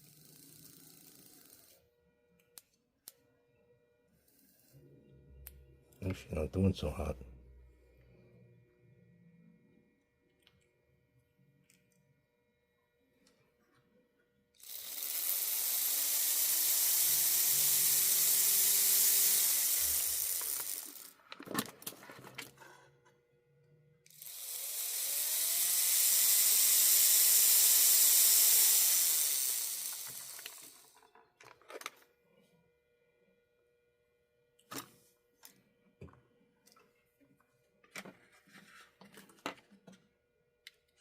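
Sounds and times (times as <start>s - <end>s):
model locomotive motor whine: 0.0s - 1.8s, 14.6s - 21.2s, 24.1s - 31.0s.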